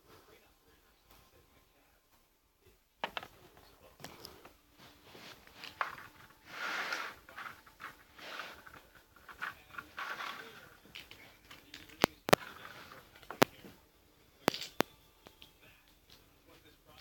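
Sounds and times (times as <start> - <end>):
plastic pieces clicking: 3.0 - 3.4, 5.6 - 13.6, 14.4 - 15.4
soft rustling: 3.0 - 17.0.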